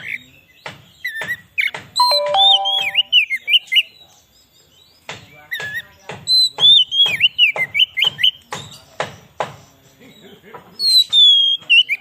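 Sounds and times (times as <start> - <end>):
bird singing whistled notes: 2.0 - 3.4.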